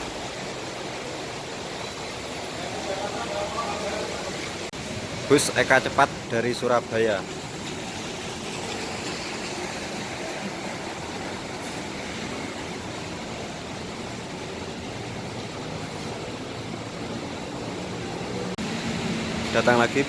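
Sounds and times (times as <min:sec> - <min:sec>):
traffic: 0:00.0 - 0:20.0.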